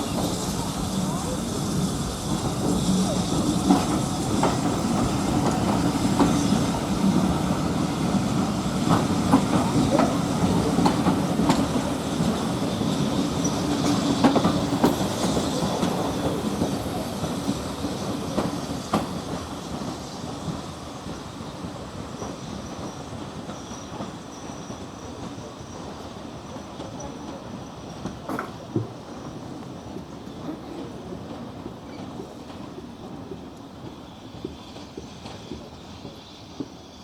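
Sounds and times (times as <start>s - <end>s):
train rumbling along track: 0.0s - 37.0s.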